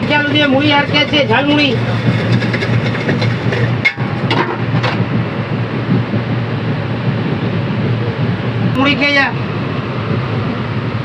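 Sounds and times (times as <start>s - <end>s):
train coach rumble and hum: 0.0s - 11.0s
faint passenger voices: 4.6s - 11.0s.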